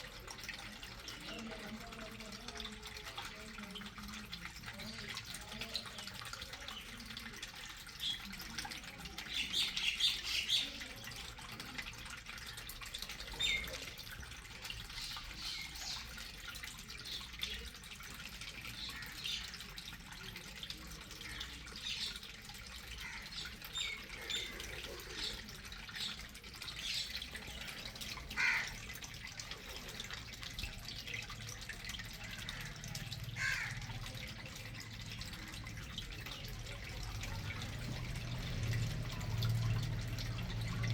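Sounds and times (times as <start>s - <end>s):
birds chirping: 4.7s - 11.7s, 12.5s - 17.9s, 18.5s - 20.1s, 21.0s - 28.8s
water balloons splashing: 22.2s - 40.9s.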